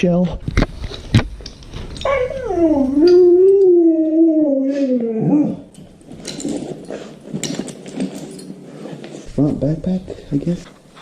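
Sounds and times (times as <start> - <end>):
dog howling: 2.0 - 5.7.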